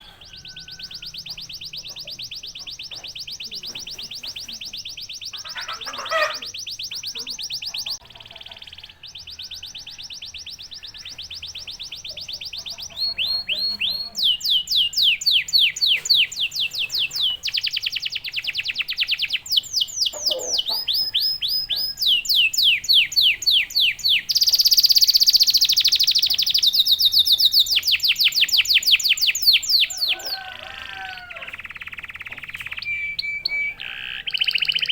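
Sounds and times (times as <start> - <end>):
canary singing trills: 0.0 - 34.9.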